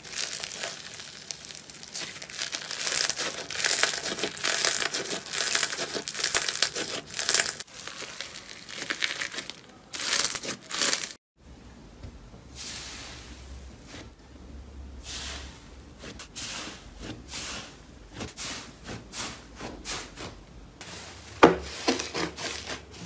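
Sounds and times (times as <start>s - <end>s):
slime crackling when squeezed: 0.0s - 11.2s.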